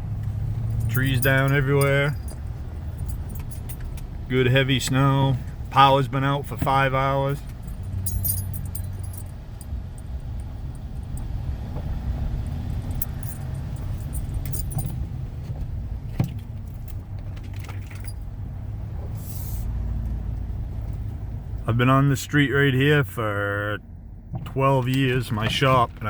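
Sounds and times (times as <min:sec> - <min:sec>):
vehicle engine and road rumble: 0:00.0 - 0:26.0
jingling clicking rattles: 0:00.6 - 0:04.3, 0:07.4 - 0:11.4, 0:12.3 - 0:15.1, 0:16.7 - 0:18.3.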